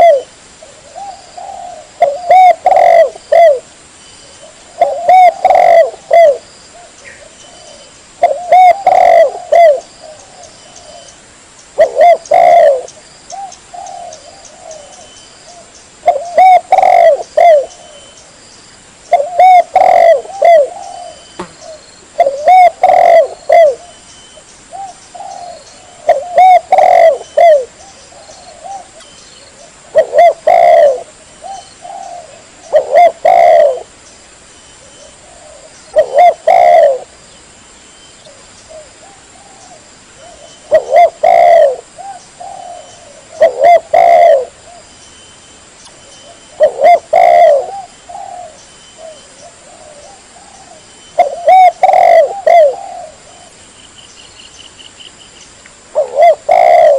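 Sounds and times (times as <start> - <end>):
dove cooing: 0.0 - 3.7, 4.4 - 11.2, 11.8 - 18.2, 19.1 - 24.0, 24.7 - 34.0, 34.8 - 37.1, 38.2 - 44.9, 46.2 - 53.6, 55.9 - 56.9.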